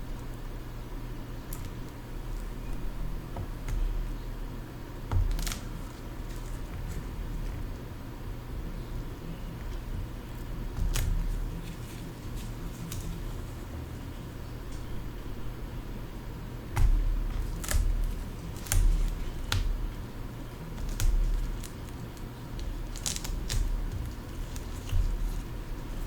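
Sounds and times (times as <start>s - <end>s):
dull bumps on a bench: 16.7s - 19.9s.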